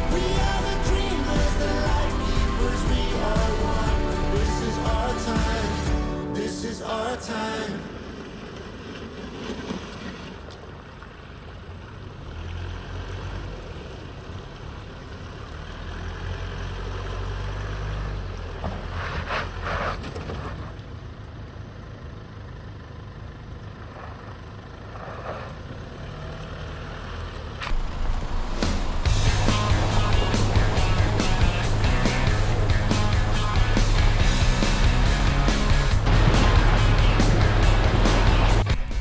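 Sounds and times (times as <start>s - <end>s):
off-road vehicle engine rumble: 0.0s - 6.4s, 7.8s - 39.0s
rushing burst of noise: 0.0s - 8.6s, 27.6s - 39.0s.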